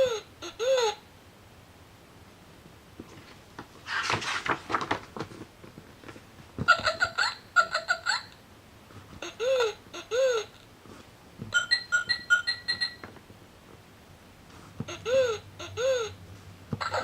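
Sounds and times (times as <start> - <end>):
scratchy rustling burst: 3.8 - 5.5.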